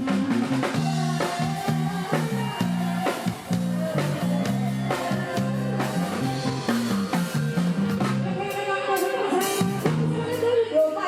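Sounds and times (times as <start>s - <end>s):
repeating bass line: 0.0s - 8.4s
drum kit: 0.0s - 11.0s
person singing: 0.0s - 11.0s.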